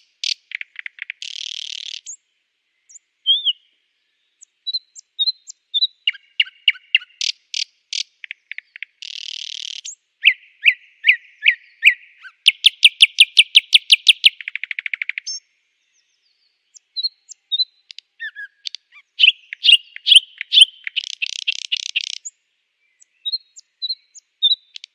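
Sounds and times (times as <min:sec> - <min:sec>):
nightingale singing: 0:00.0 - 0:24.9.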